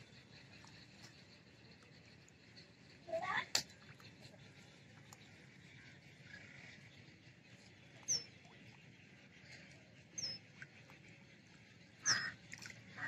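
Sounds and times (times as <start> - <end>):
bird whistling: 12.0 - 12.4
harsh lower bird call: 12.0 - 12.4.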